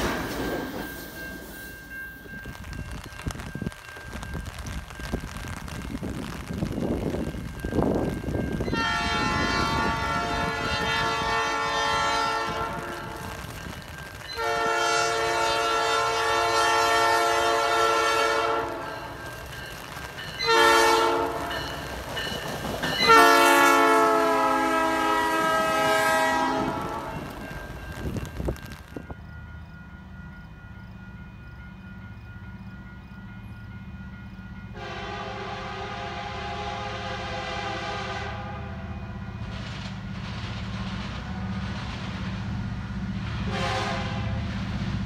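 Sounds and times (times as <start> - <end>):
moving train rumble: 0.0 - 45.0
locomotive air horn blasts: 8.6 - 13.5, 14.4 - 19.0, 20.4 - 21.6, 23.0 - 27.5, 34.7 - 39.7, 41.1 - 41.9, 43.4 - 44.5.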